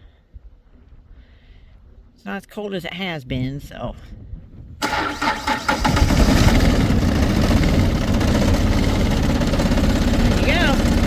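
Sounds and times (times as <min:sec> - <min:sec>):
diesel tractor engine running: 0:04.8 - 0:11.0
starter cranking: 0:04.8 - 0:11.0.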